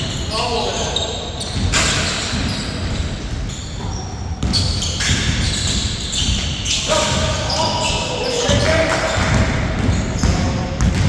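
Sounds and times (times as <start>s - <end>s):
sneakers squeaking on floor: 0.0s - 11.0s
basketball bouncing: 1.4s - 7.6s, 8.5s - 11.0s.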